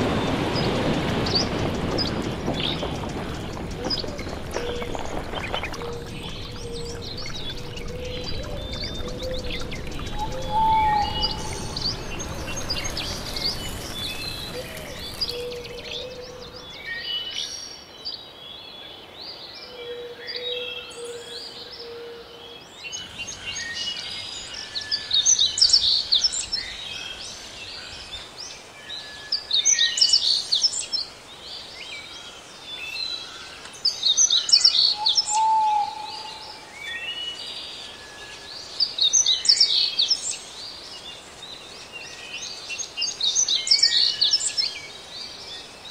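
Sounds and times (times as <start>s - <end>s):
low rushing noise: 0.0s - 16.8s
wild birds chirping: 0.0s - 45.9s.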